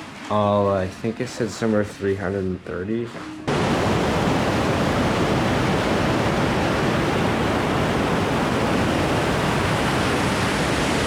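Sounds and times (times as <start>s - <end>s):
waterfall roaring: 3.5s - 11.0s.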